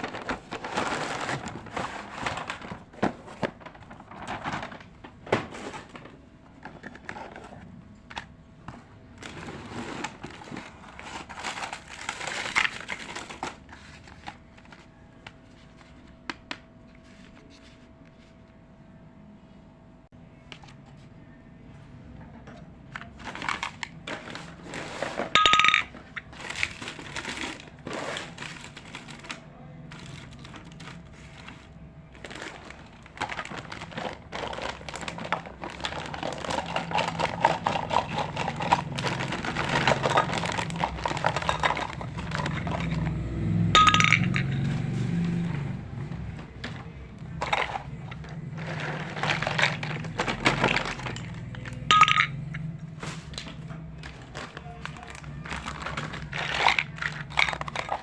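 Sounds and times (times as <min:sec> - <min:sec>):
toy pieces clicking and clinking: 0:43.8 - 0:44.6, 0:51.8 - 0:52.5.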